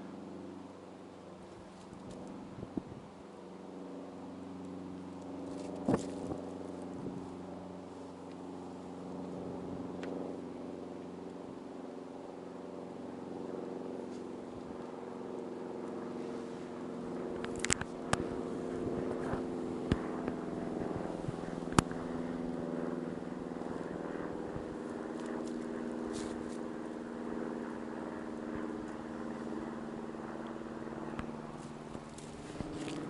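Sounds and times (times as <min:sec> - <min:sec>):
engine humming: 0:00.0 - 0:33.0.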